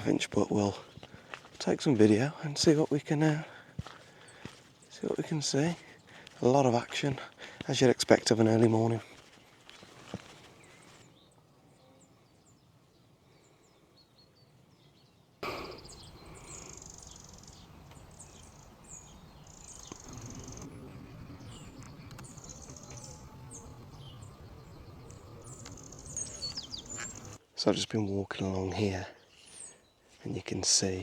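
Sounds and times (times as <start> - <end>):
small songbirds chirping: 0.0 - 31.0
low steady background rumble: 17.6 - 27.4.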